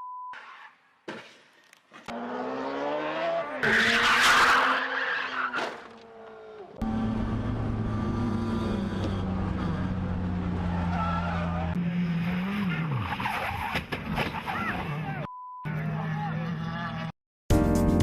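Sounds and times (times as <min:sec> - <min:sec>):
tyres skidding: 0:00.4 - 0:15.3
car engine revving: 0:02.1 - 0:13.3
steady engine drone: 0:06.8 - 0:12.2.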